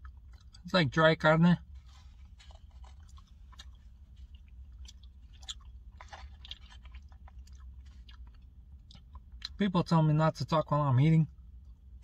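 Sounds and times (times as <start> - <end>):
faint chewing: 0.0 - 0.7, 1.6 - 9.6
low steady hum: 0.0 - 12.0.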